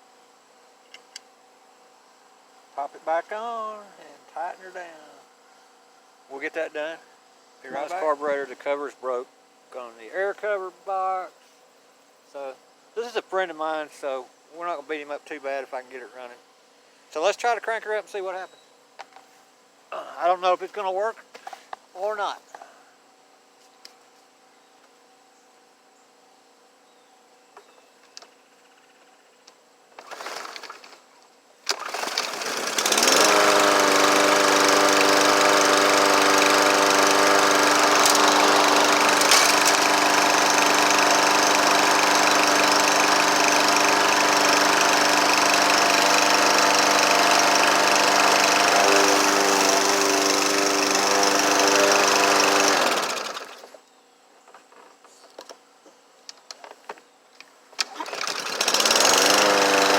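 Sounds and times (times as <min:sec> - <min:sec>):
lawn mower engine running: 0:30.0 - 0:31.0, 0:31.6 - 0:53.8, 0:57.8 - 0:59.9.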